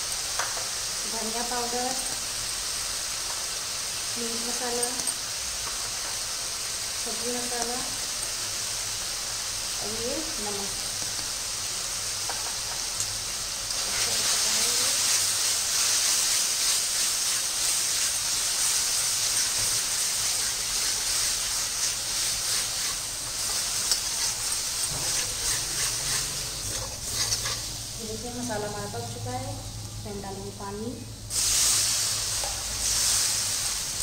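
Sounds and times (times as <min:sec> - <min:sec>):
paste sizzling in oil: 0:00.0 - 0:28.8, 0:31.3 - 0:34.0
spatula scraping pan: 0:13.8 - 0:27.8.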